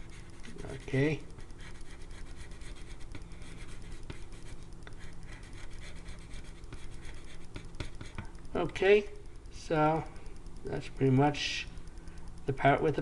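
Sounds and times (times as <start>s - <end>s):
pencil scratching on paper: 0.0s - 8.2s.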